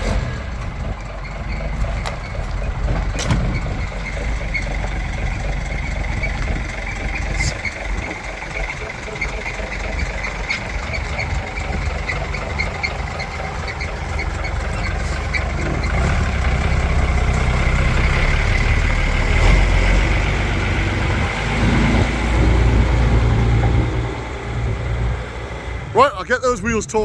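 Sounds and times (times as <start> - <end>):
truck diesel engine running: 0.0 - 27.0
rapid light exhaust ticking: 0.8 - 19.4.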